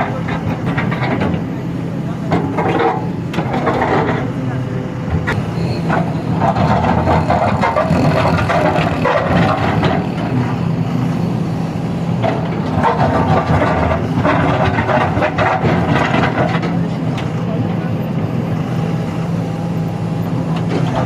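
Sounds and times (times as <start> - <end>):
excavator diesel engine running: 0.0 - 21.0
clattering and scraping: 2.3 - 4.4, 5.2 - 10.3, 12.2 - 16.8.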